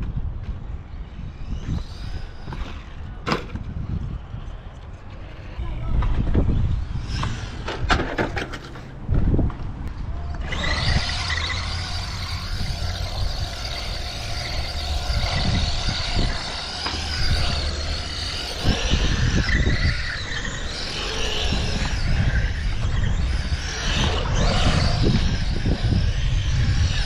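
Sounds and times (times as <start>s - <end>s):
rc truck motor whine: 0.7s - 9.0s, 10.2s - 27.0s.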